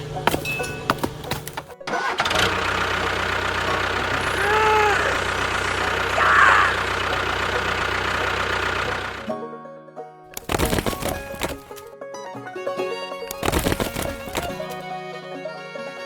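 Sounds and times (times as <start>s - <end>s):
vehicle engine running: 0.0s - 9.3s, 10.4s - 11.9s, 13.3s - 14.8s.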